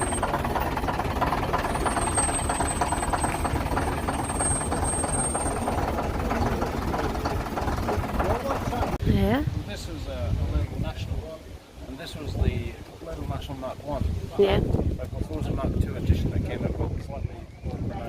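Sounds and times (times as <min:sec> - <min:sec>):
diesel engine clattering: 0:00.0 - 0:09.4.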